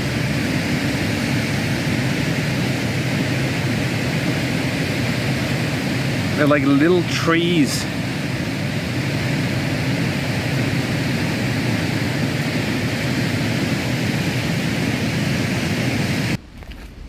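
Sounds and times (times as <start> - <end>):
waterfall rushing: 6.4 - 7.9.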